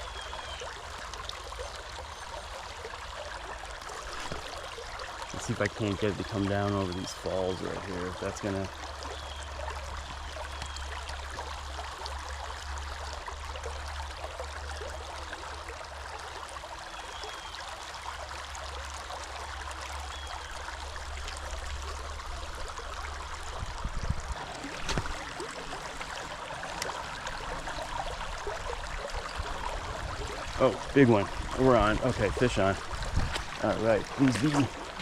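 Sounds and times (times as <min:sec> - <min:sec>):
river water rushing over rocks: 0:24.3 - 0:35.0.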